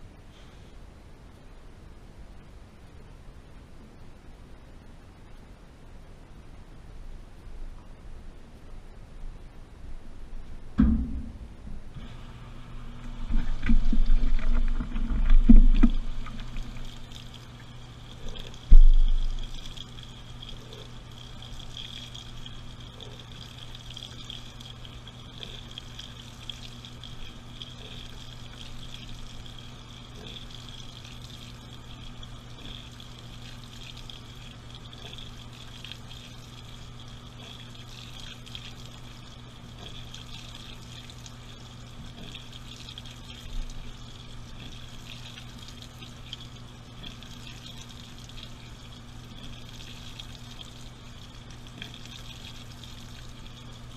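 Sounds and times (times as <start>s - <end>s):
low hum: 0.0s - 53.9s
short knock: 10.8s - 11.8s.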